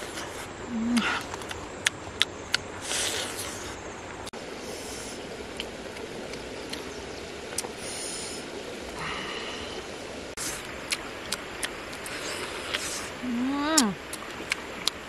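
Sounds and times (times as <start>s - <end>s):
chewing and crunching food: 0.0s - 3.8s, 10.4s - 13.2s, 13.8s - 15.0s
outdoor background hiss: 0.0s - 15.0s.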